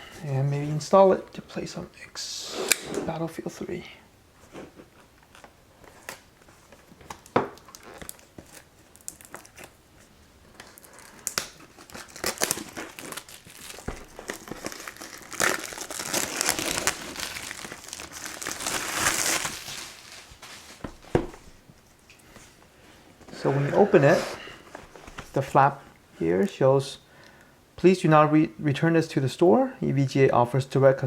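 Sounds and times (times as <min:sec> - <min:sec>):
packaging crinkling and tearing: 0:07.0 - 0:09.8, 0:10.5 - 0:20.8.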